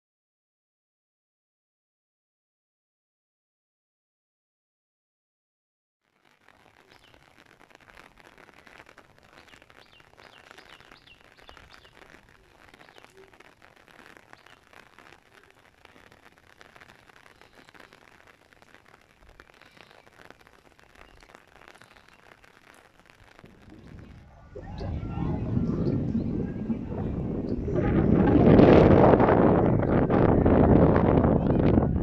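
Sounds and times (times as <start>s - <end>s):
rain pattering on umbrella: 6.0s - 32.0s
bird chirps: 6.9s - 7.2s, 9.4s - 12.1s, 12.7s - 13.3s, 20.8s - 22.5s, 23.7s - 27.8s.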